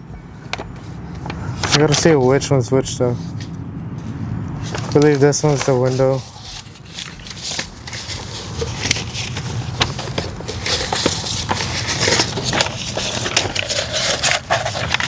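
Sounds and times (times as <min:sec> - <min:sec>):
vinyl crinkling and rustling: 0:00.5 - 0:02.4, 0:03.2 - 0:15.0
small clicks and crackles: 0:04.7 - 0:15.0.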